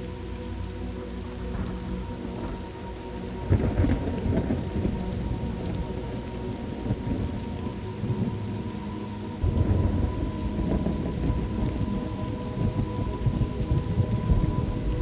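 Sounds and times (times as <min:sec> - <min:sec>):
steady rain: 0:00.0 - 0:15.0
low rolling thunder: 0:03.4 - 0:08.6, 0:09.4 - 0:15.0.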